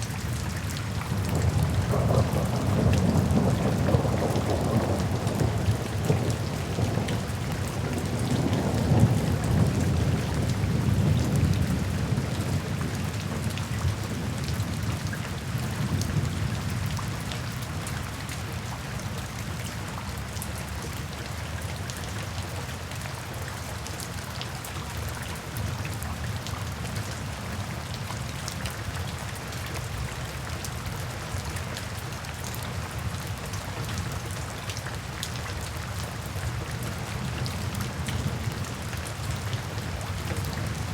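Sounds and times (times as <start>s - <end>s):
rain pattering: 0.0s - 40.9s
thunder rolling: 1.3s - 7.3s.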